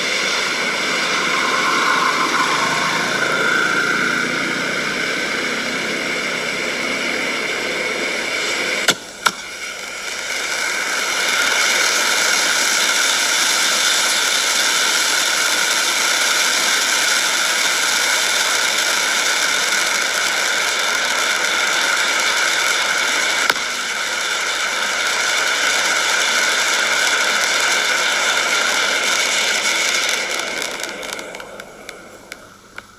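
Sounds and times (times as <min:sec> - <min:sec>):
firework fountain hissing: 0:00.0 - 0:32.9
sharp firework cracks: 0:08.4 - 0:13.2, 0:20.2 - 0:32.9.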